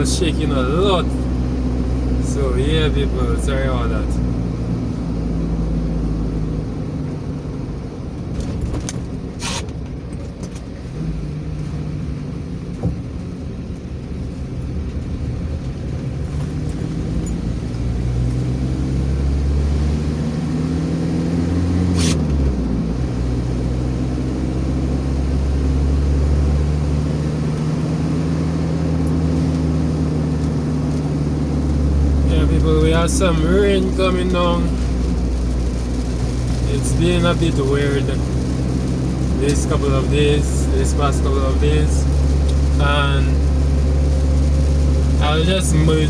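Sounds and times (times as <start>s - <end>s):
road noise: 0.0s - 46.0s
vehicle engine: 0.0s - 46.0s.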